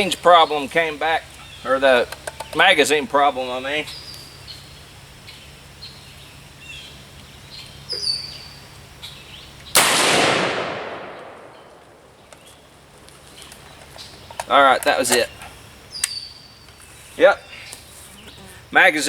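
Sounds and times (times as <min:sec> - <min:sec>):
faint bird chirps: 0:03.7 - 0:09.8, 0:15.2 - 0:18.7
rifle shot with echo: 0:09.8 - 0:12.3.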